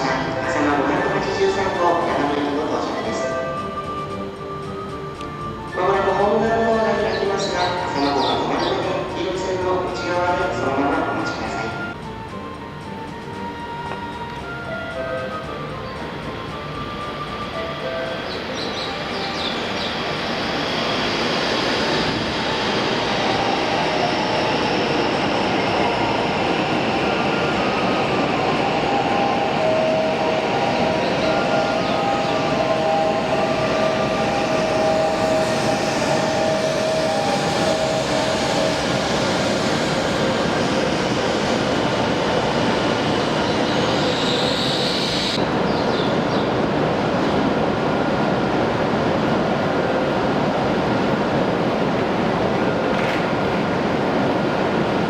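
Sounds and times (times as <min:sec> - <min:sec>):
train rail noise: 0:00.0 - 0:55.0
high squeal: 0:14.5 - 0:45.9.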